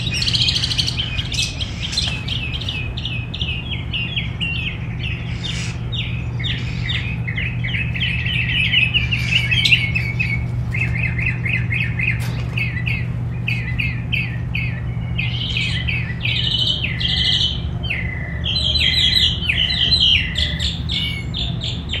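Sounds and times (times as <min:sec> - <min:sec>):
songbirds chirping: 0:00.0 - 0:22.0
steady low hum: 0:00.0 - 0:22.0.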